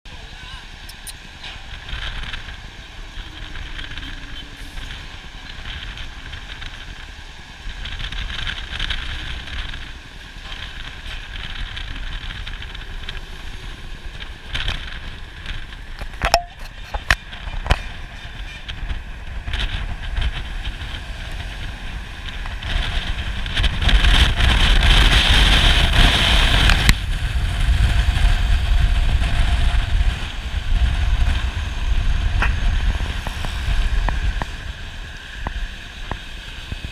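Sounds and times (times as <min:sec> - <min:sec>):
road vehicle rumble: 0:00.0 - 0:36.9
wind buffeting microphone: 0:00.1 - 0:36.9
sharp clicks: 0:00.9 - 0:01.2.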